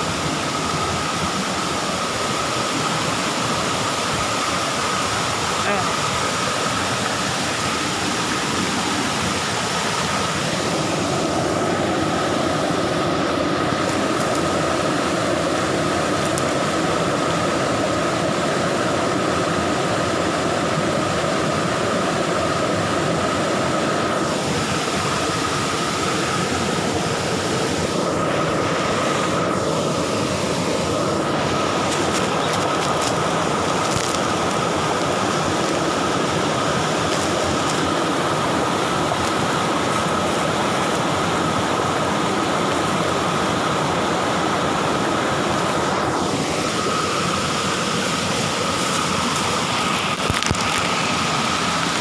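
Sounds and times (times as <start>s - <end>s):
road and wind noise: 0.0s - 52.0s
steady high whine: 0.0s - 52.0s.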